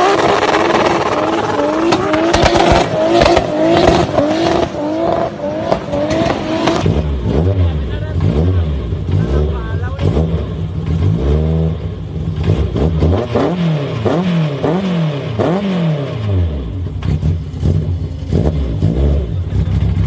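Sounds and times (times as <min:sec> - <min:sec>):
exhaust cracks: 0:00.0 - 0:11.3
car engine revving: 0:00.0 - 0:20.0.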